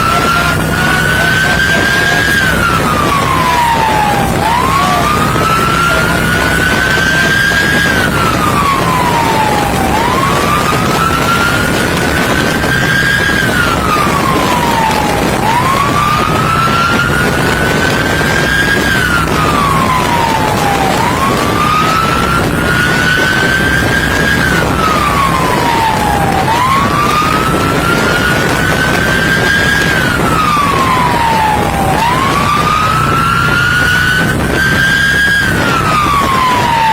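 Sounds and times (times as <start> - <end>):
low engine rumble: 0.0 - 36.9
police siren wailing: 0.0 - 36.9
wind and road noise: 0.0 - 36.9.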